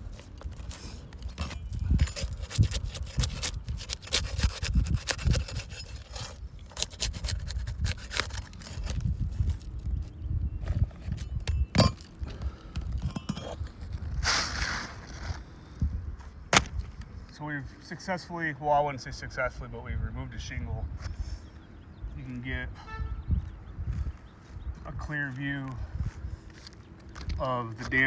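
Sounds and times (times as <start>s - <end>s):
scraping rasp: 0.0s - 9.7s
shingle scraping off roof: 0.0s - 9.7s.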